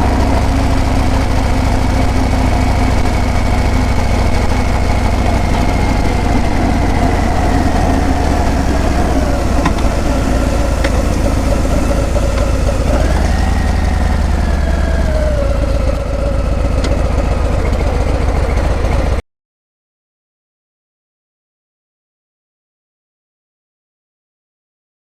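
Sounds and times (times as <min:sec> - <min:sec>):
motorcycle exhaust running: 0:00.0 - 0:19.2.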